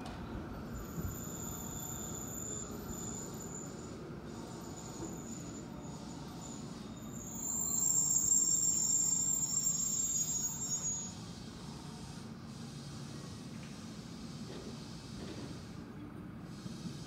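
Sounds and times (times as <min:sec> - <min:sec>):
high metallic wheel squeal: 0:00.6 - 0:11.2
train wheels rumbling on rail: 0:14.4 - 0:15.9.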